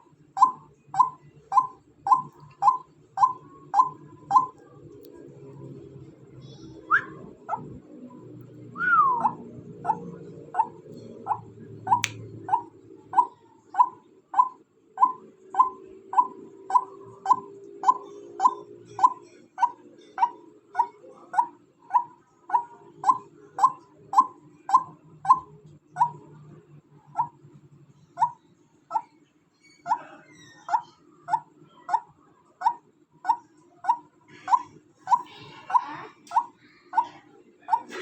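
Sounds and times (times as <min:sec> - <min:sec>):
waterhen calling: 0:08.8 - 0:26.2.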